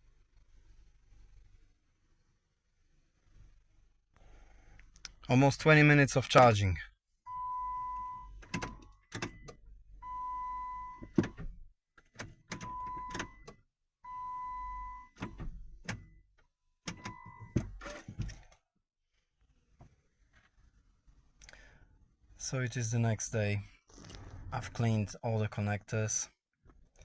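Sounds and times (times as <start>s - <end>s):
starter clicks and thunks: 8.4s - 10.3s, 10.9s - 13.6s, 15.1s - 16.1s, 16.9s - 18.6s.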